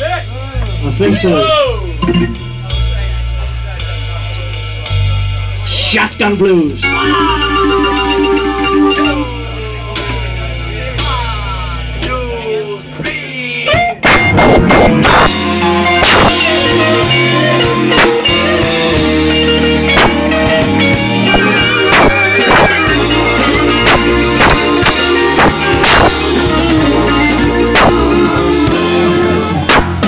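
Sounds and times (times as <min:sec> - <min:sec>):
drum kit beat: 0:00.0 - 0:05.4, 0:06.9 - 0:30.0
bass: 0:00.0 - 0:30.0
electric guitar: 0:06.8 - 0:09.4, 0:13.7 - 0:30.0.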